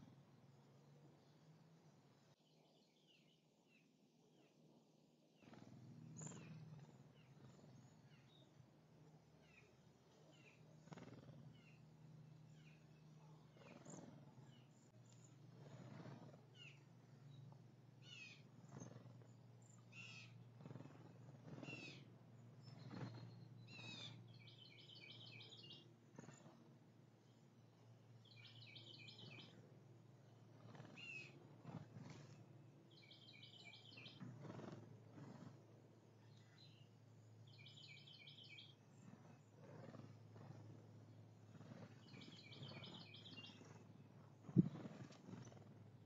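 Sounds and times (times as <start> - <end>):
faint bird chips and whistles: 19.7 - 20.9, 21.5 - 26.5, 28.2 - 29.6, 30.6 - 31.4, 32.9 - 34.7, 37.5 - 40.0, 41.7 - 43.8.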